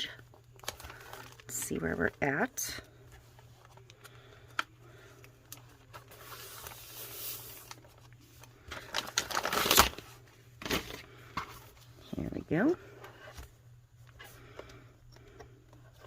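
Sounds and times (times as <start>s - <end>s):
paper pages rustling: 0.5s - 2.1s, 5.5s - 11.9s.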